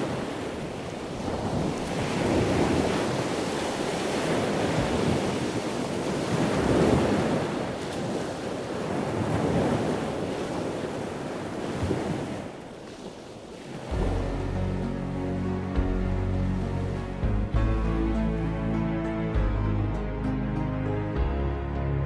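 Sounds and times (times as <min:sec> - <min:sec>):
wind buffeting microphone: 0:00.0 - 0:12.6, 0:13.5 - 0:15.0
ocean surf on a beach: 0:00.0 - 0:18.8.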